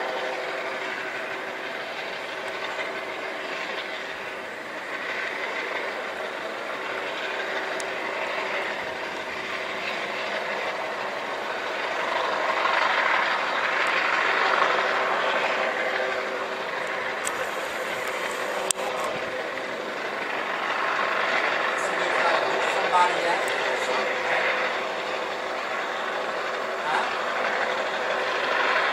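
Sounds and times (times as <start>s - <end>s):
vehicle noise humming: 16.2s - 19.9s.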